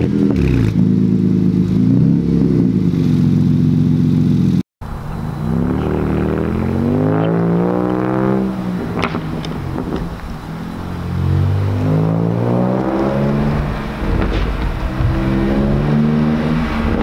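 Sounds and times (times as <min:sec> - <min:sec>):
car exhaust revving: 0:00.0 - 0:17.0
exhaust cracks: 0:05.5 - 0:17.0.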